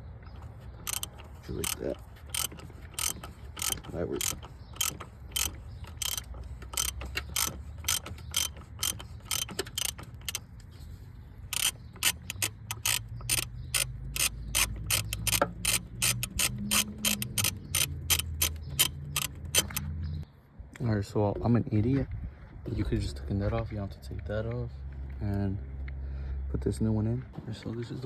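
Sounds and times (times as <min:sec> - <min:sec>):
ratchet wrench clicking: 0:00.9 - 0:10.4, 0:11.5 - 0:19.9.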